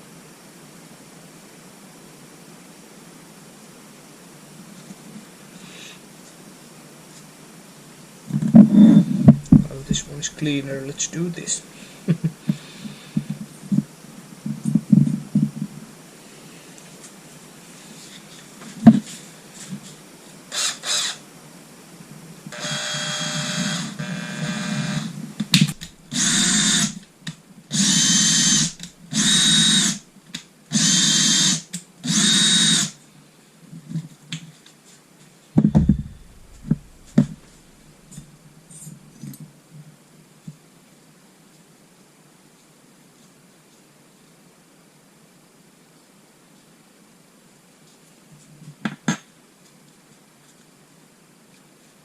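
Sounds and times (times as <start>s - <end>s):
sharp knocks: 8.6s - 10.1s, 35.6s - 37.7s
electric drill spinning: 20.5s - 21.2s, 22.6s - 27.0s, 27.7s - 30.0s, 30.7s - 32.9s.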